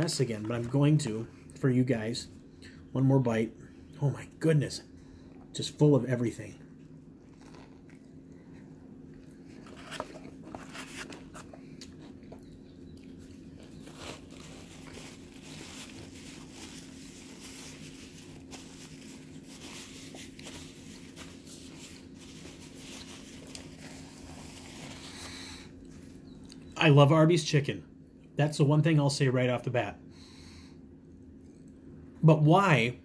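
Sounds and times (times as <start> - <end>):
steady low hum: 0.0 - 33.0
person chewing food: 7.0 - 19.5
mouth clicks and crunches: 7.2 - 8.4, 11.1 - 16.5
paper napkin rubbing mouth: 7.3 - 7.9.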